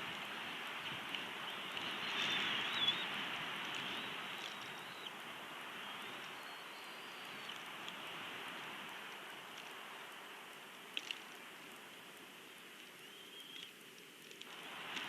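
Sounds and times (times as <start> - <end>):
steady rain hiss: 0.0 - 15.0
faint high bird calls: 1.4 - 3.2, 3.8 - 5.2, 5.8 - 7.6, 13.0 - 13.8.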